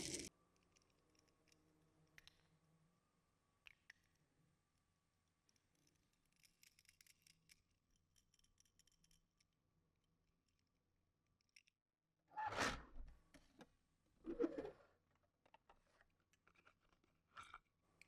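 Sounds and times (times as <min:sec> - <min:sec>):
faint clicks of toy cars: 0:00.0 - 0:02.6, 0:03.6 - 0:04.4, 0:05.2 - 0:11.8, 0:15.1 - 0:18.0
rustling scrape: 0:14.2 - 0:14.8.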